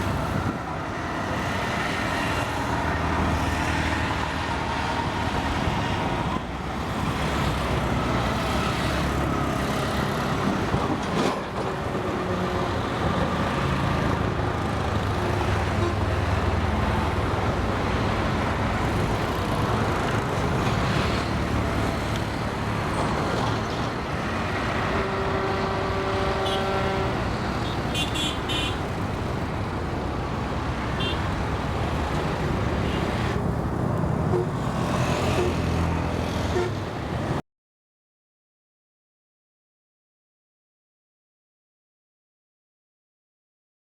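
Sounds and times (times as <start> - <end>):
wind: 0.0 - 37.4
boat horn: 24.8 - 28.8, 36.5 - 36.8.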